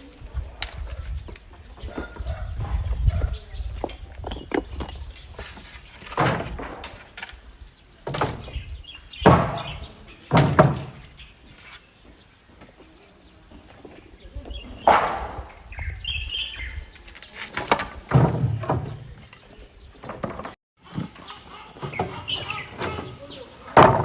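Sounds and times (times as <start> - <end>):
loud thuds and knocks: 8.0 - 11.1, 17.7 - 19.2.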